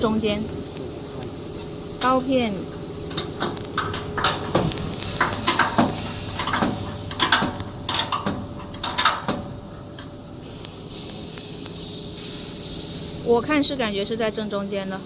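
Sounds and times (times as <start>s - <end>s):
metallic clinks and knocks: 6.4s - 9.4s.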